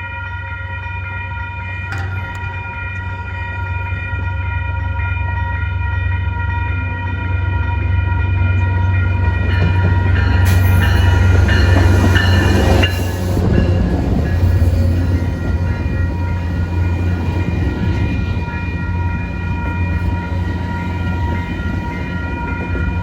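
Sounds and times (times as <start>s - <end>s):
diesel locomotive rumble: 0.0s - 23.0s
rail and wheel noise: 0.0s - 23.0s.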